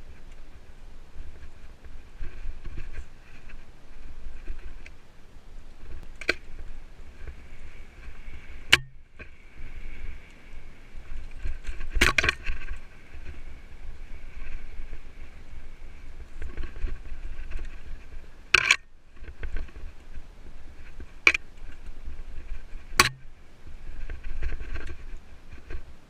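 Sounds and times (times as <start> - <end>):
mountain bike rolling on trail: 0.0 - 26.0
wind rumbling on microphone: 0.0 - 26.0
bike rattles and knocks: 5.8 - 13.5, 16.2 - 23.3.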